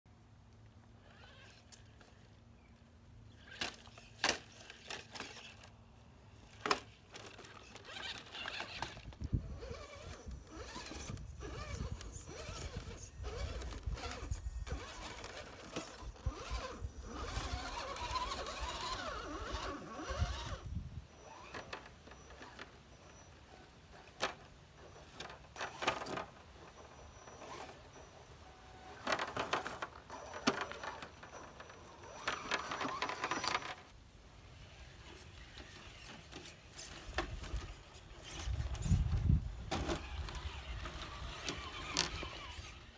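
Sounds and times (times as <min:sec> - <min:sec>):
small electric motor whining: 0:01.0 - 0:02.4, 0:03.3 - 0:33.9, 0:34.5 - 0:42.9.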